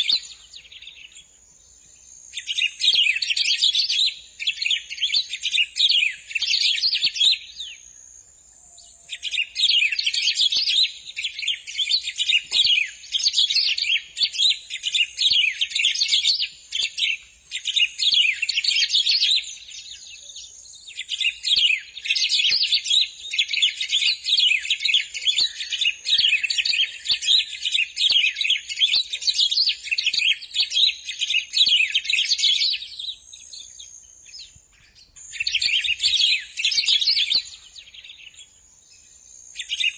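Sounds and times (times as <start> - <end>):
bird singing rapid chirps: 8.9 - 39.9.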